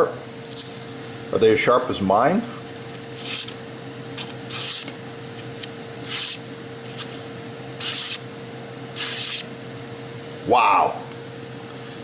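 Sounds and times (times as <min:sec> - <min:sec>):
knife scraping strokes: 0:03.2 - 0:03.6, 0:04.2 - 0:08.3, 0:09.0 - 0:09.5.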